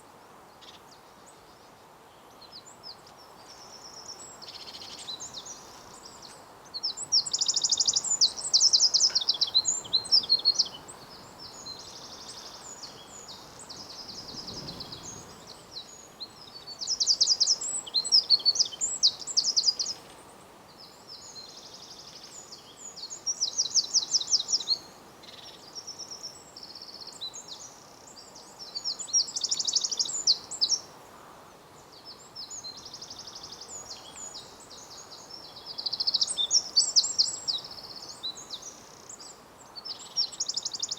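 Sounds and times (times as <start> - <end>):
steady background hiss: 0.0 - 40.9
songbird trilling: 6.9 - 15.4.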